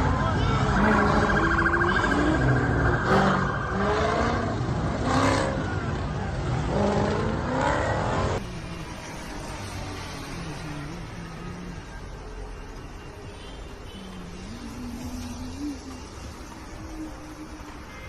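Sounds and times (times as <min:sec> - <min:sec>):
car engine revving: 0:00.7 - 0:05.8.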